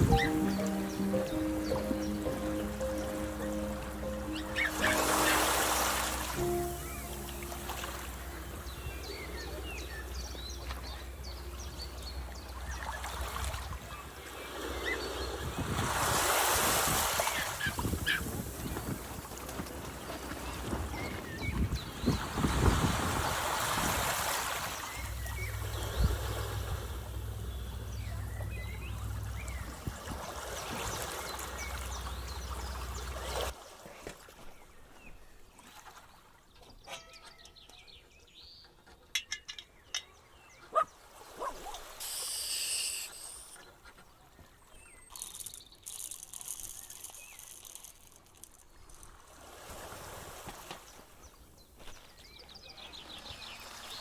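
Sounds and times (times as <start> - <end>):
surf: 0.0 - 33.6
wind: 0.0 - 54.0
low rumble: 24.9 - 33.3
short bird chirps: 42.0 - 43.6.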